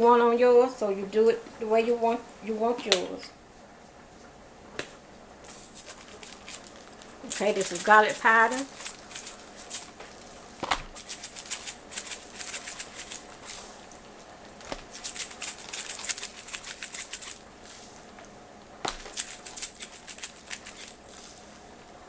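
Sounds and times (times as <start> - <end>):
spice shaker rattling: 5.4 - 10.0, 10.9 - 17.6, 19.0 - 21.6.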